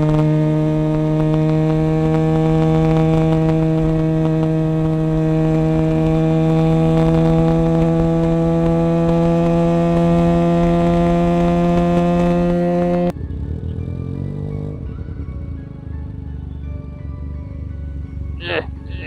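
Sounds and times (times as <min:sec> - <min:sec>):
low wind rumble: 0:00.0 - 0:13.1
motorcycle engine at high revs: 0:00.0 - 0:14.8.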